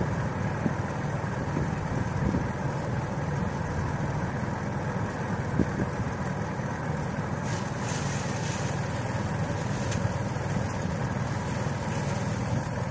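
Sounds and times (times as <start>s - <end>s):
threshing machine engine running: 0.0s - 12.9s
hiss of threshed material: 7.3s - 12.9s.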